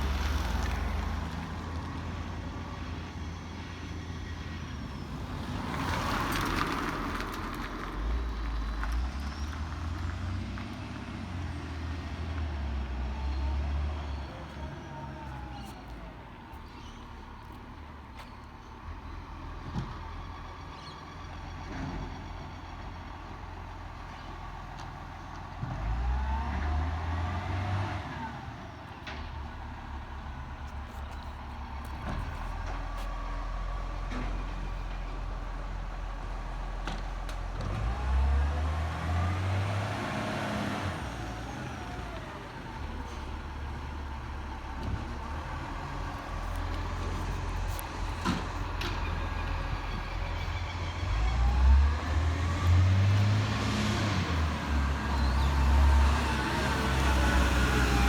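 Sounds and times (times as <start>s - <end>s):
garbage truck diesel engine revving: 29.3s - 58.0s.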